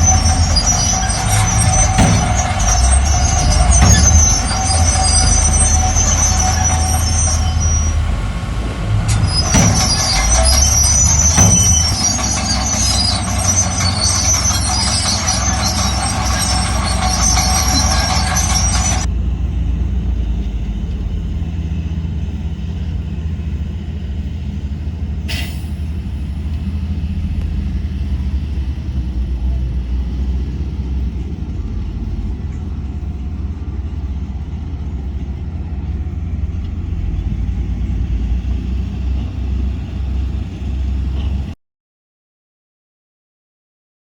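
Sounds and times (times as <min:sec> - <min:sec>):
high-pitched squeal: 0:00.0 - 0:19.1
diesel machinery rumbling: 0:00.0 - 0:41.6.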